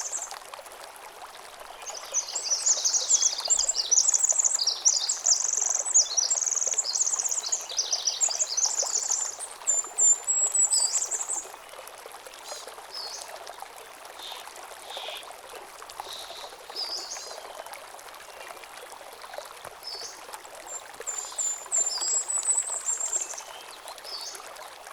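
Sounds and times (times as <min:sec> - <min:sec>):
stream trickling over stones: 0:00.0 - 0:24.9
songbird singing: 0:01.8 - 0:11.5.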